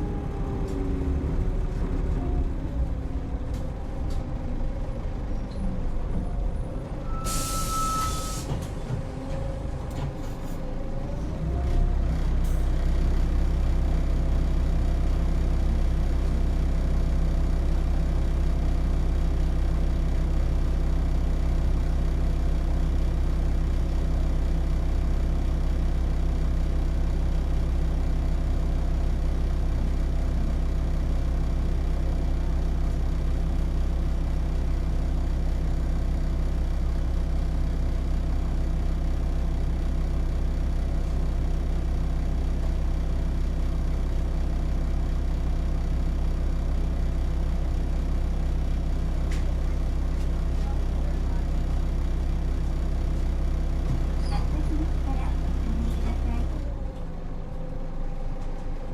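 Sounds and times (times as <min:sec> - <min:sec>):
bus diesel engine idling: 0:00.0 - 0:58.9.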